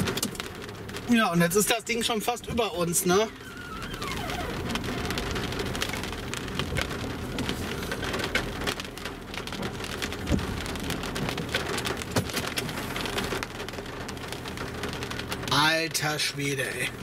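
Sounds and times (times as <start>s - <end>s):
raindrops ticking on windshield: 0.0s - 17.0s.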